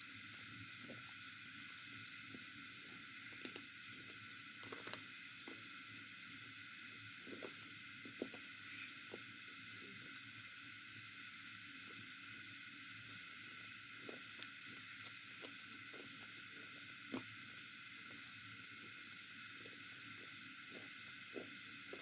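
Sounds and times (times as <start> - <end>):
insect chirping: 0.0 - 22.0
soft eating clicks: 4.6 - 5.6.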